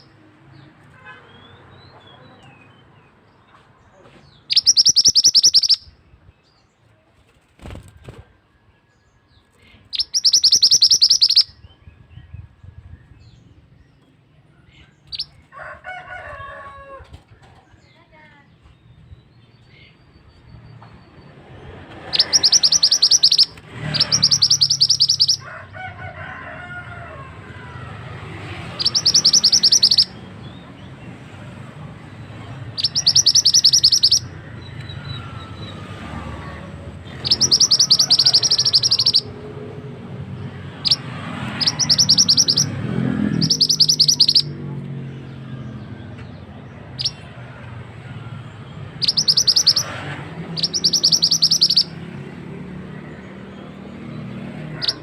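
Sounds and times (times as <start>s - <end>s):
bird trilling song: 4.2s - 6.7s, 9.1s - 15.4s, 17.8s - 25.4s, 28.5s - 39.5s, 40.4s - 44.7s, 45.5s - 55.0s.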